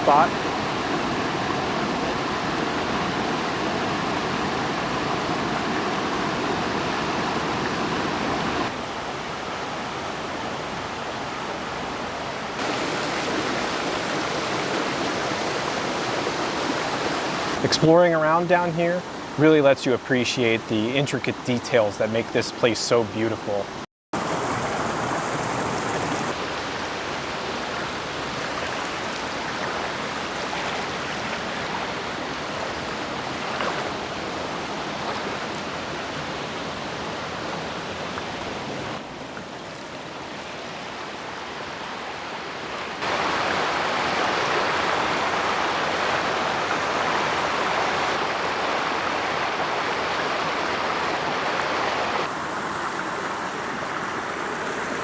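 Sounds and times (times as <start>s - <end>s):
waterfall rushing: 0.0s - 8.8s, 12.6s - 18.4s, 24.2s - 33.4s, 42.6s - 55.0s.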